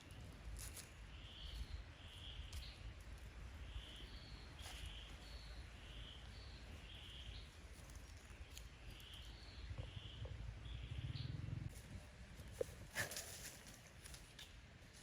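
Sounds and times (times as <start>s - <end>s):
low steady rumble: 9.4s - 12.1s.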